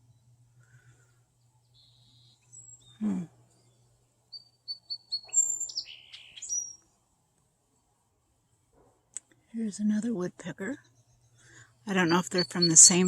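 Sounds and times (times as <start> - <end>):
woodpeckers chirping and chattering: 0.7 - 7.0, 10.8 - 13.0.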